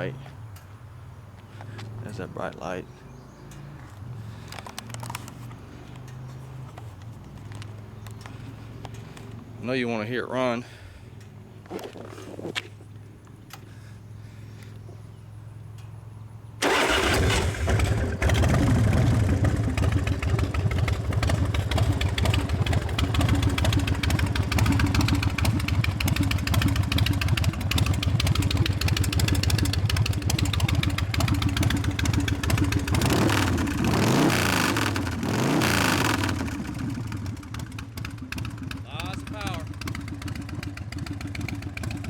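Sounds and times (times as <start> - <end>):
motorcycle engine starting and idling: 0.0 - 42.0
motorcycle engine revving: 16.6 - 42.0.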